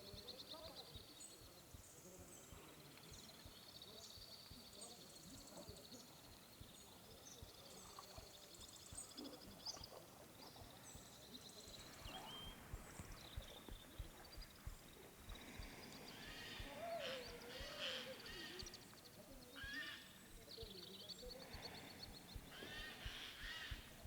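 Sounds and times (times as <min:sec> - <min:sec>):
wavering call: 0:16.3 - 0:18.7.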